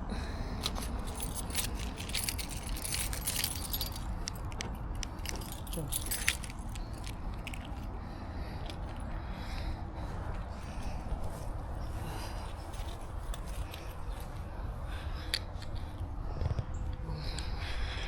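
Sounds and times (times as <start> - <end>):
steady low rumble: 0.0 - 18.0
keys jangling: 0.6 - 8.0.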